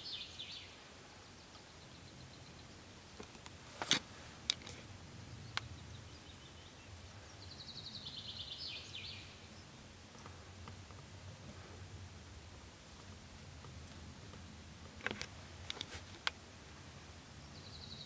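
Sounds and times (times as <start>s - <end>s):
small bird singing a trill: 0.0s - 2.8s, 5.3s - 9.8s, 17.4s - 18.0s.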